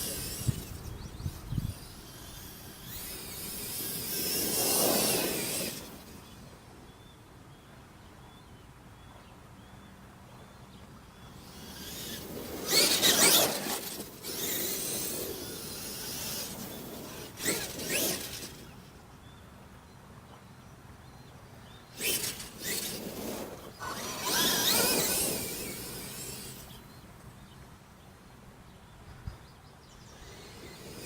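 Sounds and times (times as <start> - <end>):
rc truck running over rough ground: 0.0 - 7.1, 11.2 - 19.4, 21.1 - 27.7, 29.2 - 31.0.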